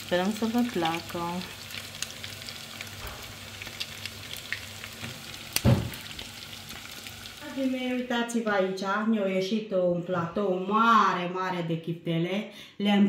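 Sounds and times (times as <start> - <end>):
meatballs sizzling in hot oil: 0.0 - 8.1
dull thump: 5.6 - 6.0.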